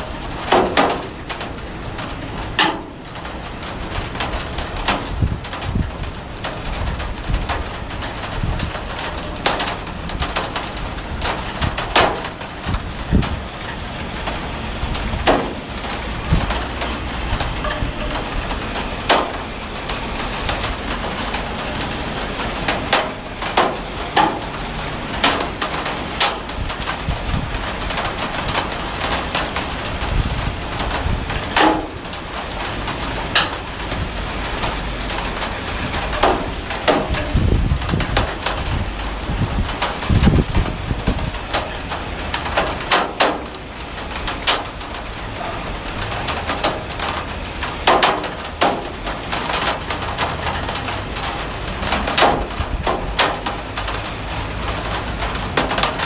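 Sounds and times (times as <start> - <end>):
heavy rain falling: 0.0 - 56.0
large raindrops splatting: 0.0 - 56.0.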